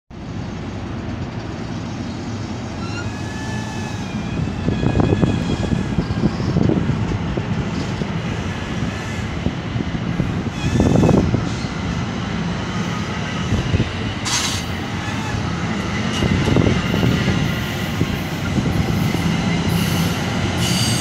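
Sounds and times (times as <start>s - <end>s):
train wheels rumbling on rails: 0.1s - 21.0s
faint high-pitched wheel squeal: 2.8s - 6.5s.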